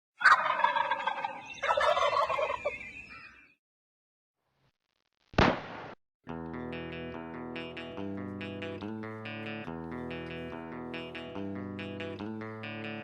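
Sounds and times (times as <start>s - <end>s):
turkey gobbling: 0.2s - 3.1s
music: 6.3s - 13.0s.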